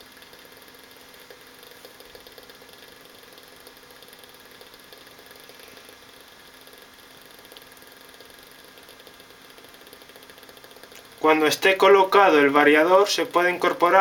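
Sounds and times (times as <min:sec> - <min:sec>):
small fan humming: 0:00.0 - 0:14.0.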